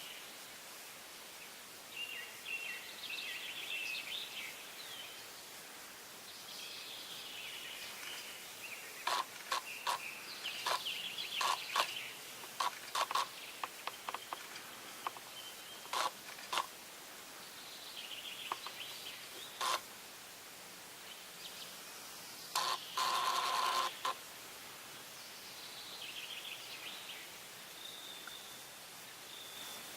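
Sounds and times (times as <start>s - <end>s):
bird warbling song: 7.2s - 16.1s.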